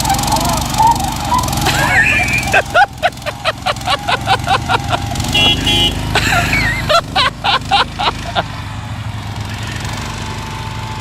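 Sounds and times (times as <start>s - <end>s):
quick runs of sharp pulses: 0.0s - 8.4s
lawn tractor engine running: 0.0s - 11.0s
car horn toot: 5.0s - 6.6s.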